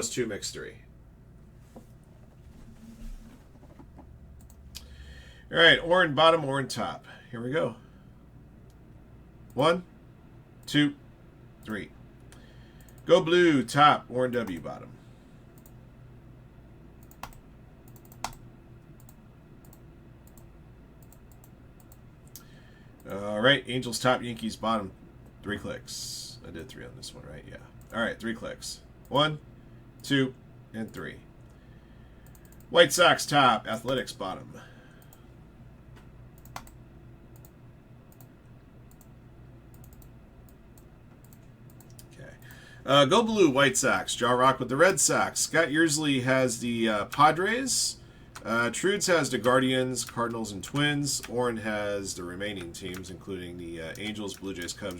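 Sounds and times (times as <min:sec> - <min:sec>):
steady low hum: 0:00.0 - 0:54.9
computer mouse clicks: 0:03.6 - 0:04.9, 0:17.0 - 0:23.2, 0:32.2 - 0:32.7, 0:35.9 - 0:39.1, 0:39.7 - 0:42.6, 0:53.9 - 0:54.9.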